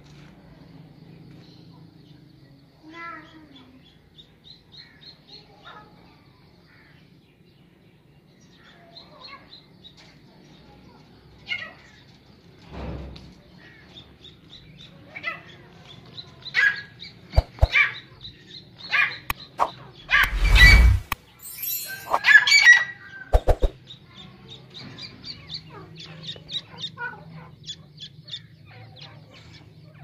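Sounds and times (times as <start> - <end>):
birds chirping: 13.8 - 22.6.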